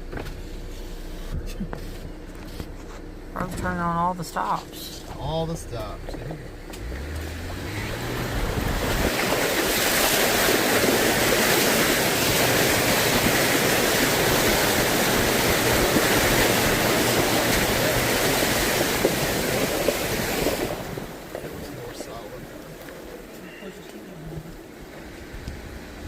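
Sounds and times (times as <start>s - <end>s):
muddy water rushing and spraying: 6.8s - 26.0s.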